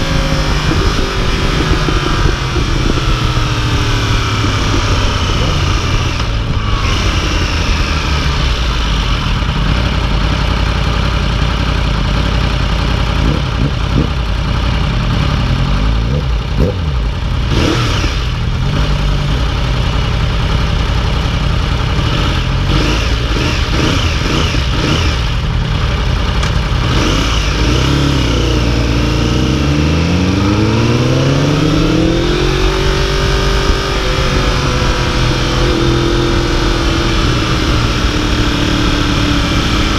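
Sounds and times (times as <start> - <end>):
wind on microphone: 0.0 - 8.6
motorcycle engine revving: 0.0 - 39.9.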